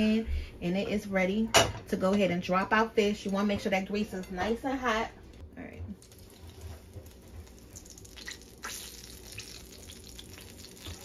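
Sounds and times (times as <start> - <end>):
fish sizzling in frying oil: 6.0 - 11.0.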